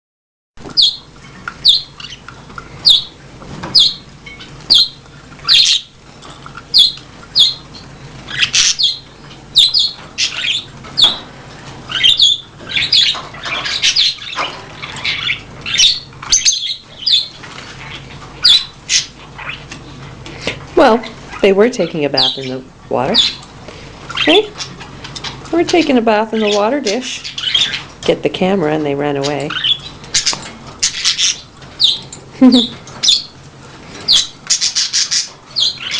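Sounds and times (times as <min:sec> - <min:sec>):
budgerigars squawking: 0:01.6 - 0:02.2, 0:02.8 - 0:03.2, 0:03.8 - 0:05.9, 0:06.7 - 0:11.2, 0:11.9 - 0:19.7, 0:21.3 - 0:23.4, 0:24.1 - 0:27.9, 0:29.2 - 0:33.4, 0:34.0 - 0:35.9.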